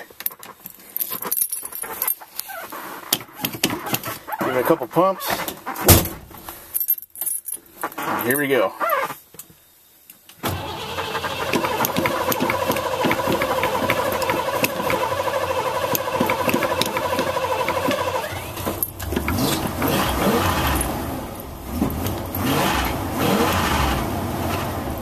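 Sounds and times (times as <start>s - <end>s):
starter motor cranking: 10.4s - 25.0s
engine running: 10.5s - 25.0s.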